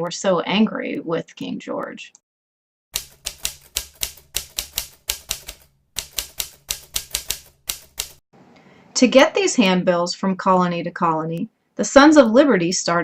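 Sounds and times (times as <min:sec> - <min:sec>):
typewriter keys clacking: 0:03.0 - 0:08.2.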